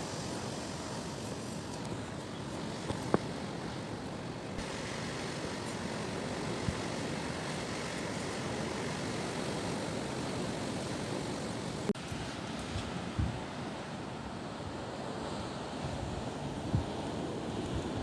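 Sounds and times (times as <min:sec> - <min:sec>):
gusty wind on microphone: 0:04.6 - 0:13.6, 0:14.7 - 0:18.0.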